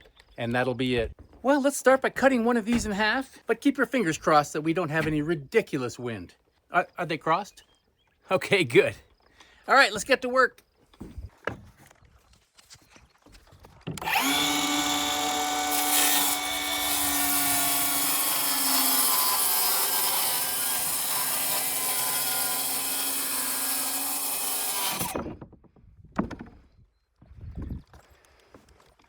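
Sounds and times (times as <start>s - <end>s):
circular saw cutting wood: 14.0s - 25.3s.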